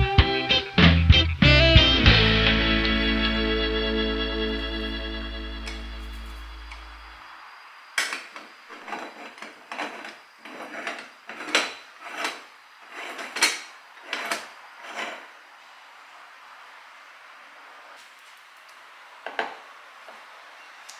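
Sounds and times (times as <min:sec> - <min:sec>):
short scraping strokes: 0:08.2 - 0:15.3.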